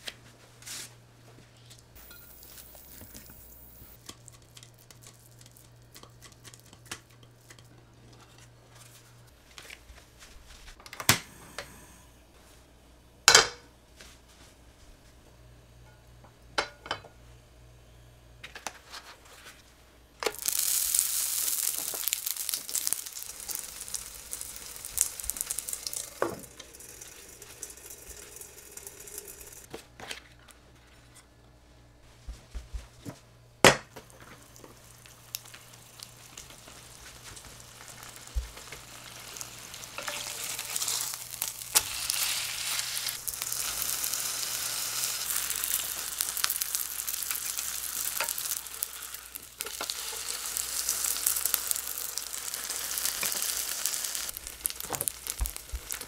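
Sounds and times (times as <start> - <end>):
oil sizzling in a frying pan: 2.0 - 5.7, 20.2 - 29.7, 34.0 - 56.0.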